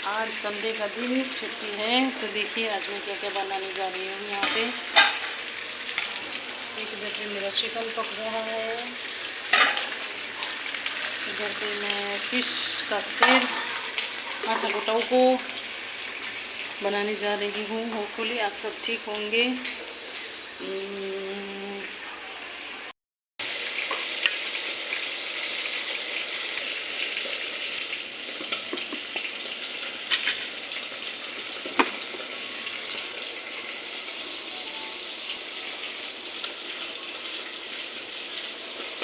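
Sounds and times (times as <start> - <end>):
food sizzling in hot oil: 0.0 - 39.0.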